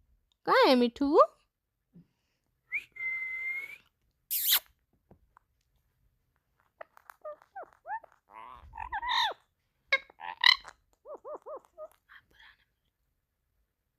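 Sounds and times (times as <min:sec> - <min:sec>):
parrot chirping: 0:04.3 - 0:04.7, 0:06.6 - 0:12.6
parrot squawking: 0:06.8 - 0:12.5.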